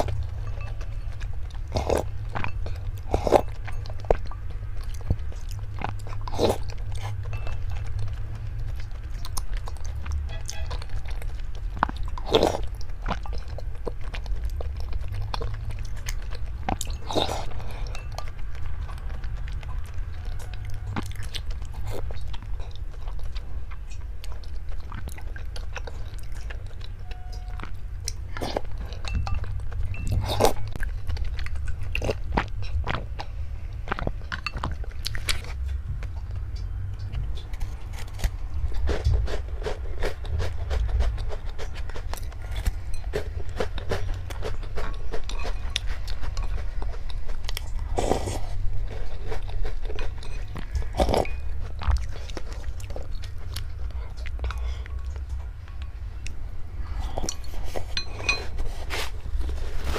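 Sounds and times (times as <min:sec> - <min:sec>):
person chewing crunchy food: 0:00.0 - 0:59.9
low rumble: 0:24.8 - 0:43.5.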